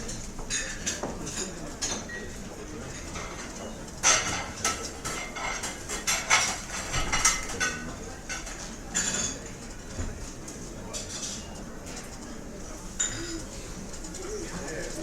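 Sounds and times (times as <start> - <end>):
low room murmur: 0.0 - 15.0
cutlery and dishes clinking: 2.9 - 9.6, 10.9 - 12.2.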